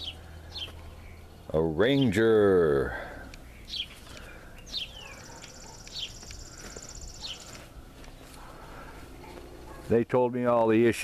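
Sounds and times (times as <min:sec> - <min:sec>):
bird high rapid trill: 0:03.7 - 0:07.6.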